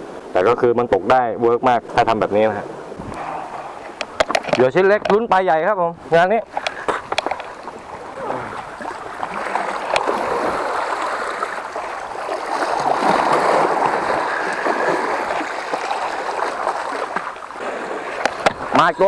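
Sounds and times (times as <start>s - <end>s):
seawater washing over rocks: 6.4s - 19.0s.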